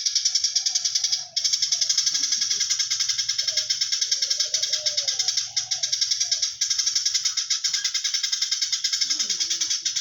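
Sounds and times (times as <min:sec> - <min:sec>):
sparrow chirping chatter: 0:00.0 - 0:10.0.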